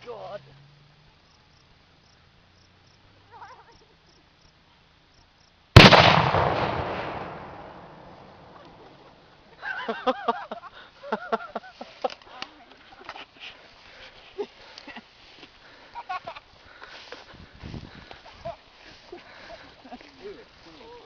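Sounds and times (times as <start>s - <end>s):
loud explosion: 5.8s - 8.6s.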